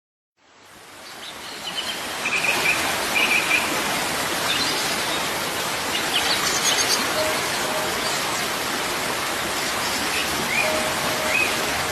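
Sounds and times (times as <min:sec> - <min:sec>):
waterfall rushing: 0:01.7 - 0:11.9
bird chirping: 0:10.5 - 0:11.9.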